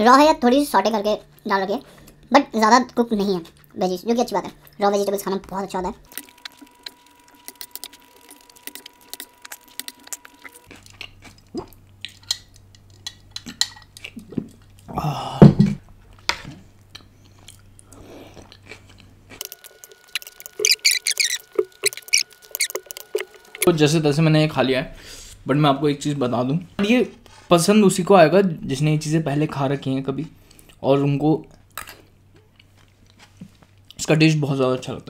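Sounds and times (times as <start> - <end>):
person chewing noodles: 6.0 - 15.0, 16.1 - 23.7, 31.5 - 34.0.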